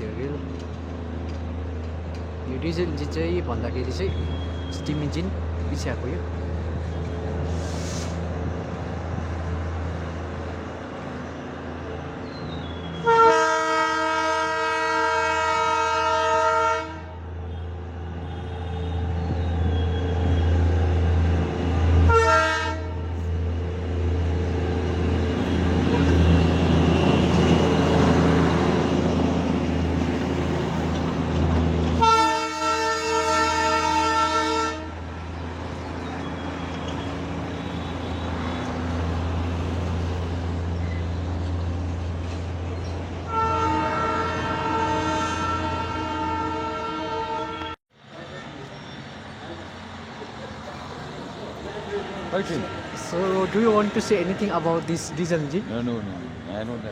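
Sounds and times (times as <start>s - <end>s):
diesel locomotive droning: 0.0s - 56.9s
locomotive horn blasts: 12.8s - 20.5s, 22.0s - 23.2s, 32.0s - 35.0s, 37.5s - 38.6s, 43.3s - 47.8s.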